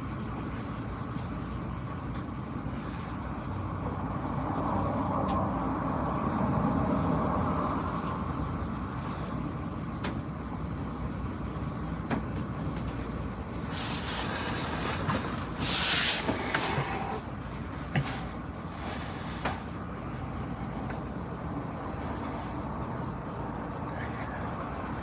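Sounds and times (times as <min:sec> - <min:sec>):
truck engine idling: 0:00.0 - 0:04.6, 0:07.9 - 0:25.0
burst of air hiss: 0:15.6 - 0:17.1.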